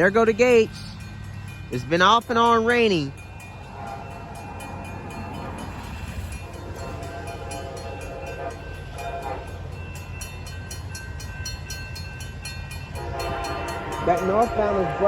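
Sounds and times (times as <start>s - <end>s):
railroad crossing bell dinging: 0.0s - 15.0s
faint train horn: 3.6s - 9.8s, 12.9s - 15.0s.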